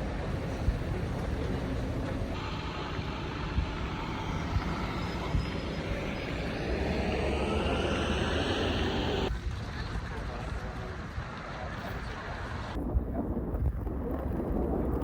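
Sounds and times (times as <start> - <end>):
jet engine whine rising: 2.4 - 9.3.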